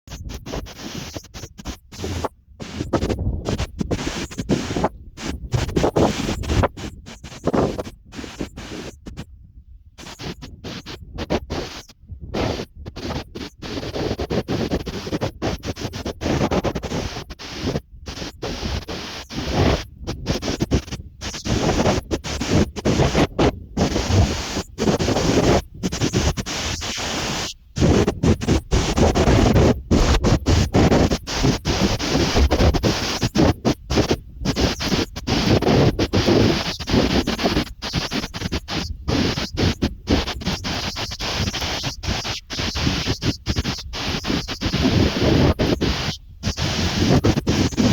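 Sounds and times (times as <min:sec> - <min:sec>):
storm wind buffeting microphone: 0:01.9 - 0:13.8.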